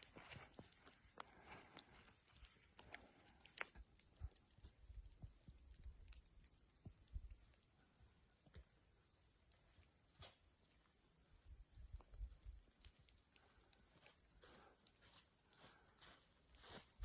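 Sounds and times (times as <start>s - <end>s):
footsteps crunching on snow: 0.0s - 1.9s, 14.0s - 17.0s.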